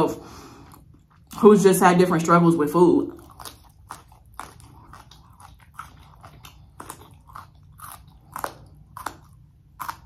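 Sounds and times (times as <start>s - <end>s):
mouth chewing crunchy stems: 2.7s - 10.0s.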